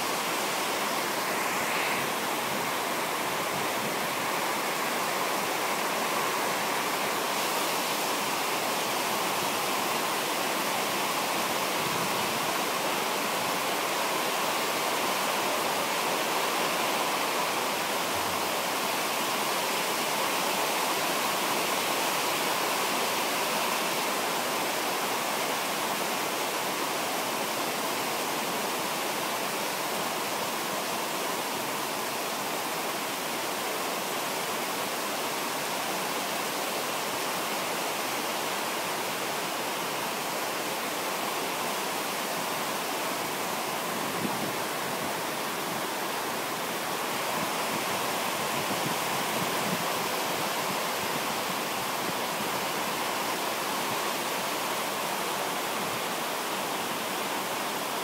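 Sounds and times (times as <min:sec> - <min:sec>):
heavy rain pouring: 0:00.0 - 0:33.6.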